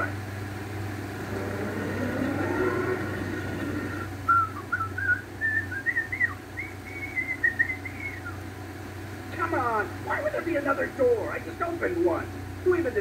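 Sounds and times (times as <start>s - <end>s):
constant low hum: 0.0s - 13.0s
person whistling a tune: 4.3s - 8.4s.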